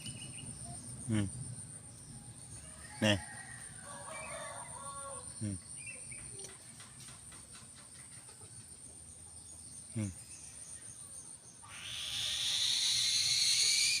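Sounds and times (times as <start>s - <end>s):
loud high insect buzzing: 11.6s - 14.0s.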